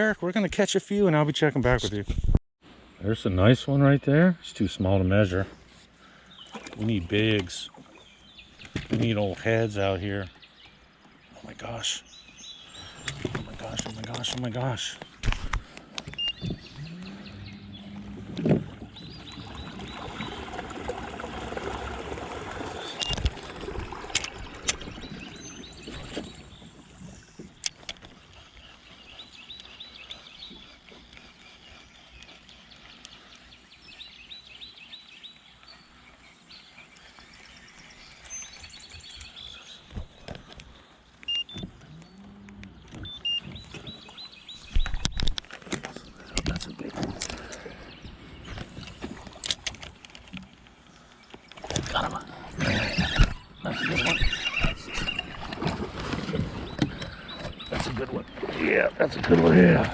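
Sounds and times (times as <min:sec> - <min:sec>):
fishing reel ticking: 0:26.3 - 0:39.4.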